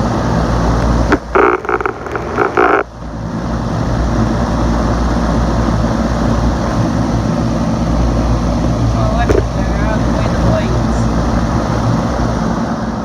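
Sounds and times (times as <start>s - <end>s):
fan running with motor hum: 0.0s - 13.0s
short buzzing bursts: 1.0s - 2.9s.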